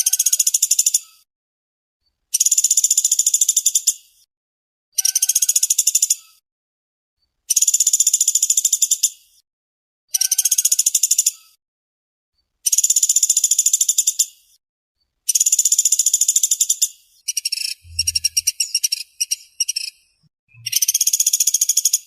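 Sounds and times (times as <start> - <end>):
woodpecker rattling trills: 15.3 - 19.9.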